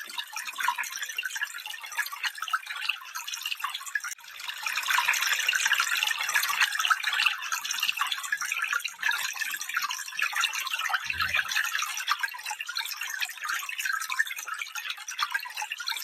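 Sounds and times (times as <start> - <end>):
stream water running: 9.7 - 15.0.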